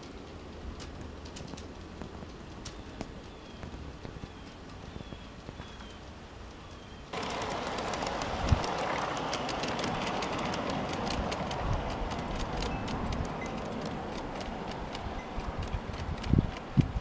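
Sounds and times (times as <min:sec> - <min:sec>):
wheels clicking over rail joints: 0:00.0 - 0:17.0
freight train rumbling past: 0:07.1 - 0:17.0.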